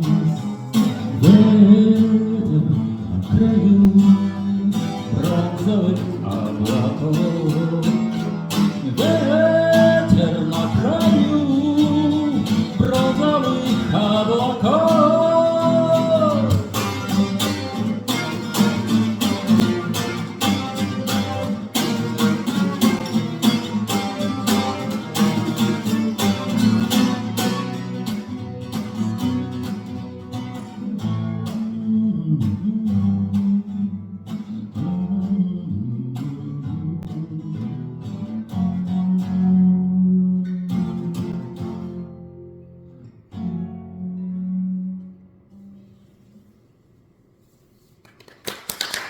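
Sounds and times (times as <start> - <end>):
man singing: 0.0 - 18.4, 30.7 - 41.7
acoustic guitar strumming: 0.0 - 46.8.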